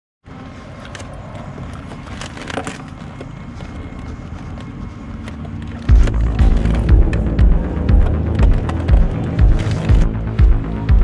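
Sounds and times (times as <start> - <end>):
loud music with heavy bass: 5.9 - 11.0
low rumble: 5.9 - 11.0.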